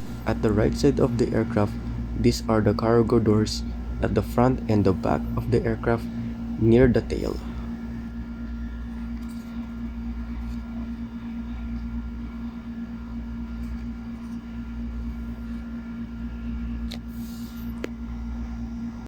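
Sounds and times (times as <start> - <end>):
low rumble: 0.0 - 9.1
steady background hum: 0.0 - 19.0.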